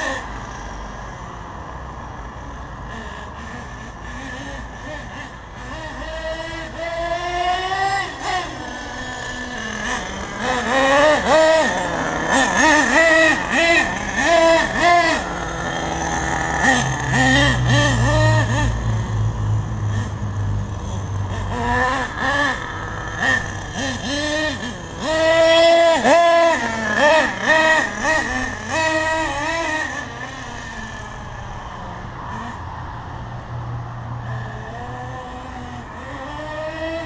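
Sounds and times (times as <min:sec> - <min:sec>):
nitro engine revving: 0:00.0 - 0:37.0.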